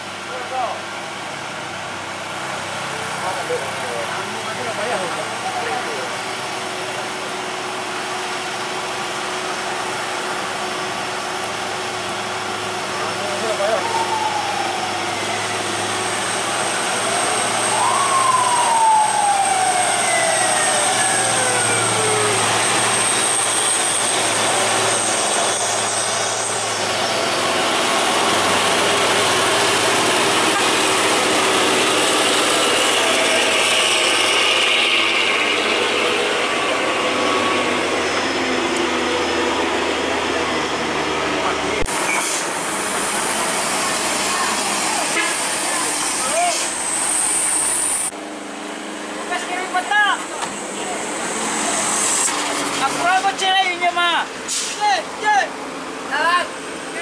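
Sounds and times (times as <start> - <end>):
heavy truck engine straining: 0.0 - 57.0
road noise: 0.0 - 57.0
engine whine falling in pitch: 17.0 - 24.3.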